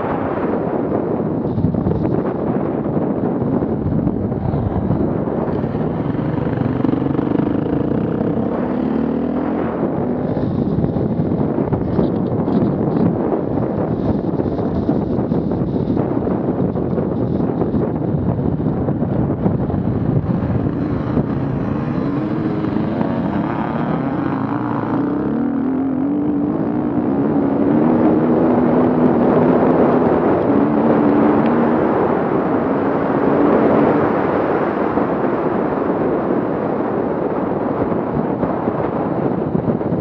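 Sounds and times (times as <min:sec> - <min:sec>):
wind noise on microphone: 0:00.0 - 0:40.0
vehicle engine revving: 0:03.6 - 0:11.8, 0:19.1 - 0:34.2.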